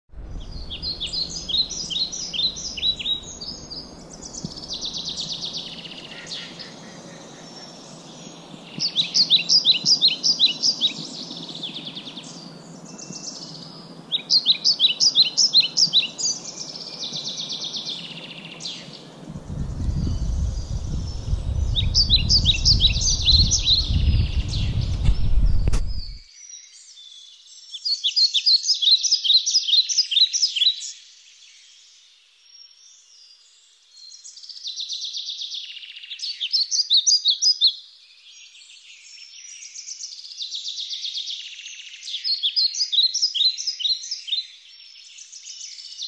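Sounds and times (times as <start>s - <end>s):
low rumble: 0.1s - 4.7s, 19.3s - 26.2s
songbird chirping: 0.2s - 46.0s.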